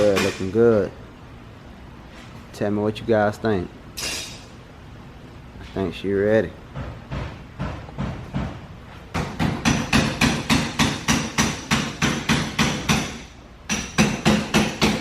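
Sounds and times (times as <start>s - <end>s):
rapid hammering: 6.7s - 15.0s.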